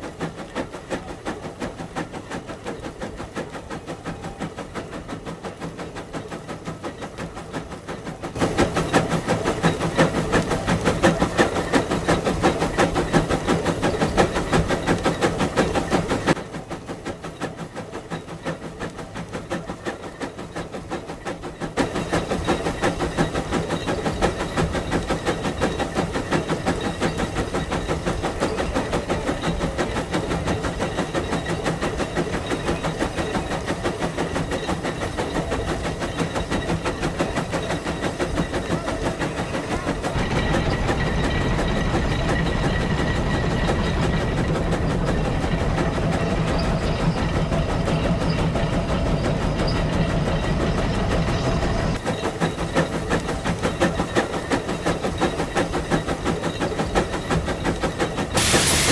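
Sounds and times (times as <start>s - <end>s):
steam hissing: 21.6s - 58.9s
steam engine exhaust chuffing: 21.8s - 58.9s.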